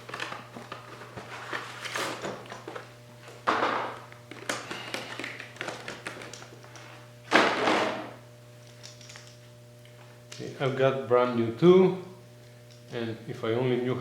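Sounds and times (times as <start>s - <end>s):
steady low hum: 0.0s - 14.0s
rustling and scraping handling sounds: 0.1s - 3.4s.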